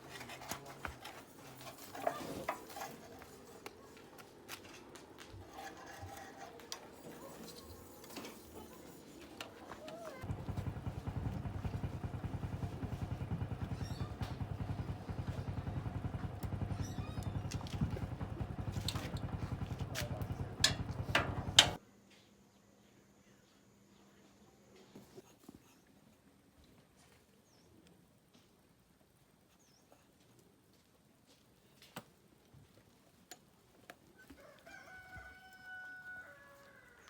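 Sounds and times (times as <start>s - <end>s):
small engine idling: 10.2s - 21.8s
clicks and knocks of hand work: 18.8s - 21.8s.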